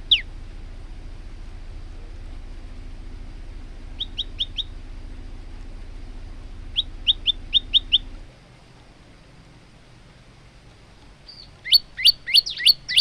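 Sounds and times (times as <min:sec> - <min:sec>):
bird singing sharp high notes: 0:00.0 - 0:00.3, 0:04.0 - 0:04.7, 0:11.3 - 0:13.0
steady low hum: 0:00.0 - 0:13.0.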